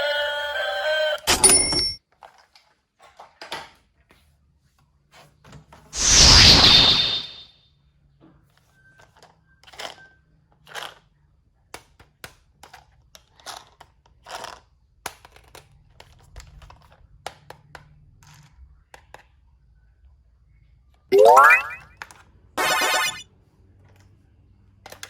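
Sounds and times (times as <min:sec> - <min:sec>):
tone sweeping upward: 0:21.1 - 0:21.8, 0:22.6 - 0:23.2.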